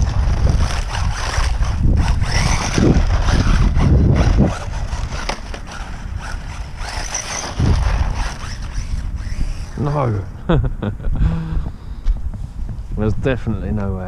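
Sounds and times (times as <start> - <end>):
electric motor whine: 0.0 - 10.3
wind buffeting microphone: 0.0 - 14.0.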